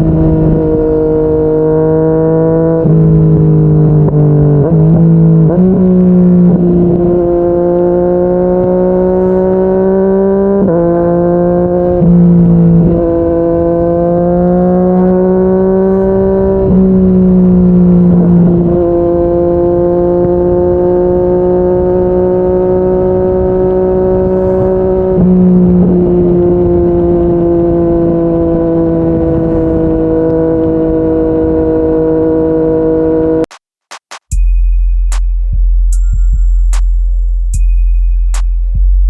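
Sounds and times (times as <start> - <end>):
motorcycle engine cruising: 0.0 - 33.5
wind noise: 14.8 - 32.9.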